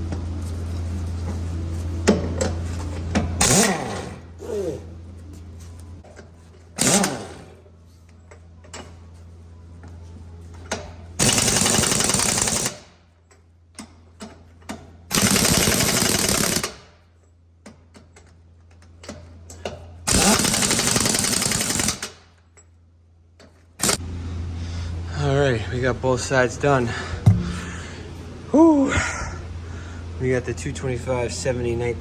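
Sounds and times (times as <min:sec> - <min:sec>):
impact wrench hammering: 0:27.2 - 0:27.7.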